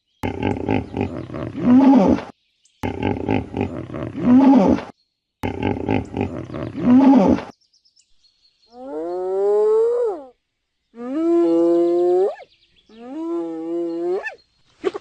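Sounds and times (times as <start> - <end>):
big cat roaring: 0.2 - 7.5.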